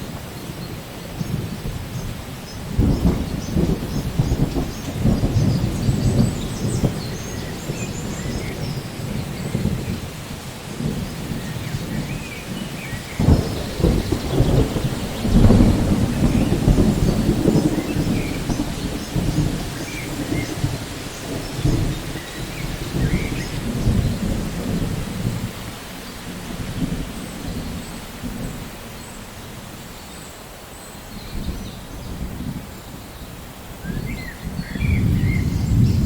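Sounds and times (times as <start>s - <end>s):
steady rain: 0.0s - 36.0s
thunder crack and rumble: 2.7s - 28.7s, 34.0s - 36.0s.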